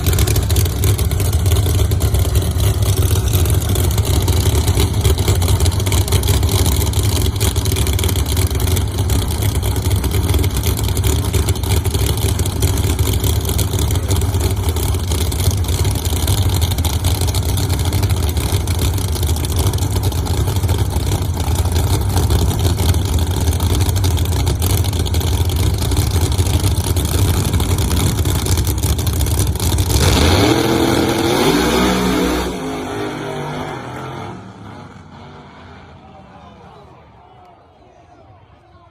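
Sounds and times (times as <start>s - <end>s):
low engine rumble: 0.0s - 30.0s
engine revving up: 29.6s - 36.1s.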